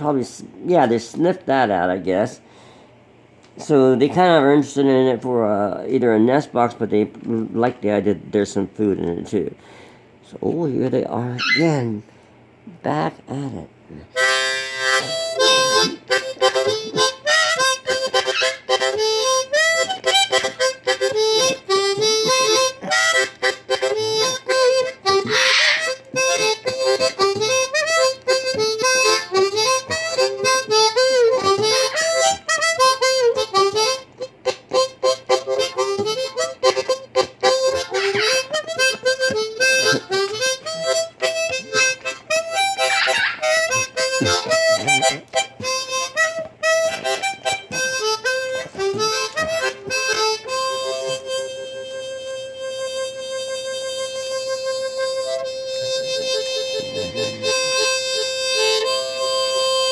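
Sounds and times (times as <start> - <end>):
parrot squawks: 11.4 - 11.8, 18.2 - 18.7, 25.2 - 26.0, 37.9 - 38.5, 42.8 - 43.7
blues harmonica: 14.1 - 59.9.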